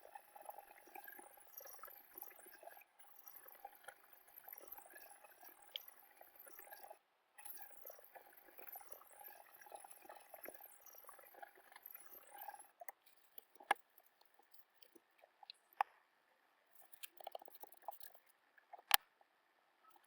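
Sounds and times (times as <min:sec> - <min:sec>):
small clicks: 0:11.3 - 0:16.0, 0:16.7 - 0:19.2.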